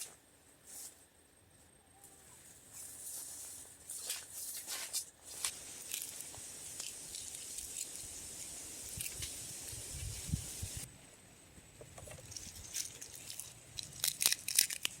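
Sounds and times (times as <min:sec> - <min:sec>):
leaves rustling and crackling: 0:02.4 - 0:10.9.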